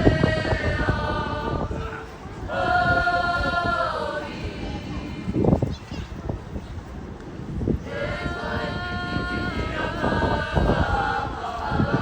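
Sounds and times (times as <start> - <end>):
children singing: 0.0 - 5.0, 7.9 - 12.0
low wind rumble on microphone: 0.0 - 12.0.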